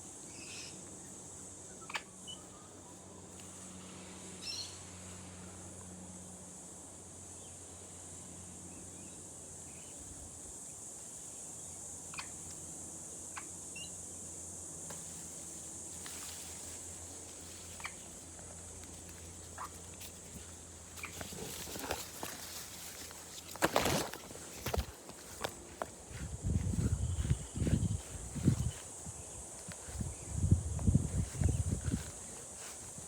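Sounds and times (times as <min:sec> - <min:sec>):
rustling: 0:16.0 - 0:27.4.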